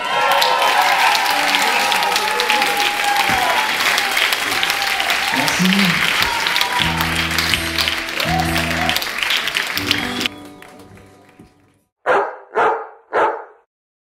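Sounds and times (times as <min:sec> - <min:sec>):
audience applauding: 0:00.0 - 0:11.8
band closing chords: 0:06.8 - 0:09.0.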